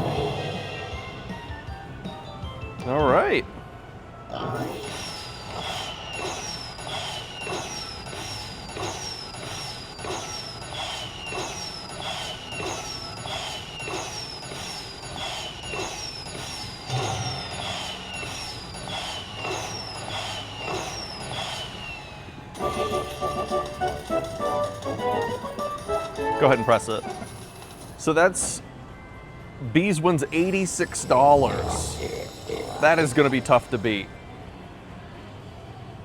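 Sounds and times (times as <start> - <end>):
falling electronic chirp with knock: 5.6 - 21.8
casino background noise: 22.5 - 28.7, 29.6 - 34.1.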